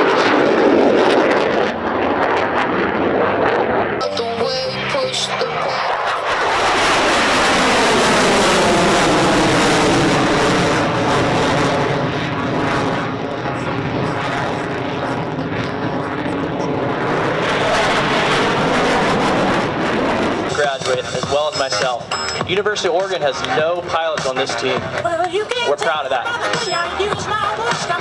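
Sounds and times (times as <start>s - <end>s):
jet engines passing: 0.0s - 28.0s.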